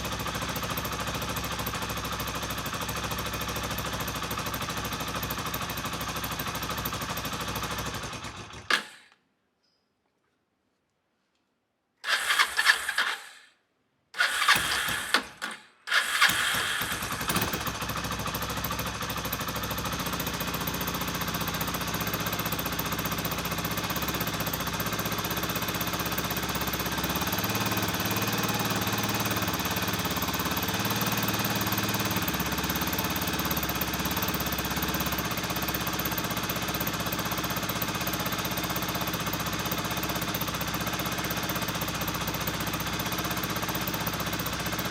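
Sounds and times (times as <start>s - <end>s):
motorcycle engine idling: 0.0s - 9.1s, 14.2s - 44.9s
motorcycle engine cranking: 7.3s - 9.2s, 12.0s - 13.6s, 14.2s - 19.4s.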